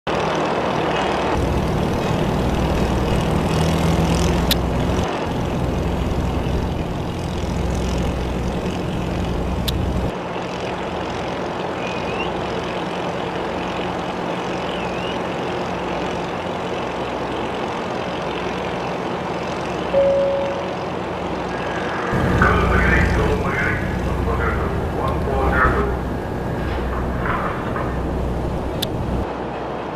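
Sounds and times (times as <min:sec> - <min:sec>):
diesel engine rumble: 0:01.3 - 0:10.2, 0:19.7 - 0:29.3
short higher tone: 0:20.0 - 0:21.1.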